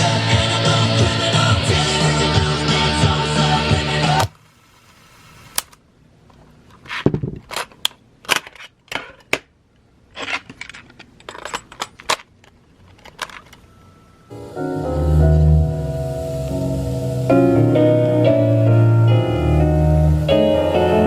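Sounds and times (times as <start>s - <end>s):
music playing: 0.0s - 4.3s, 14.3s - 21.0s.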